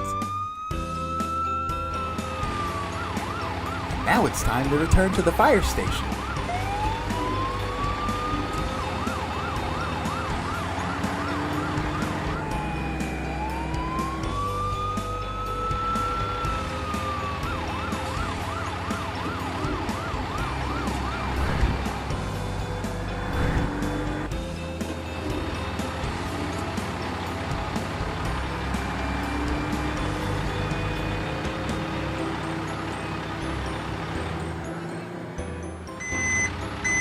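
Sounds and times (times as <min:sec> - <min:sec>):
fire truck siren wailing and yelping: 0:00.0 - 0:23.1, 0:23.8 - 0:37.0.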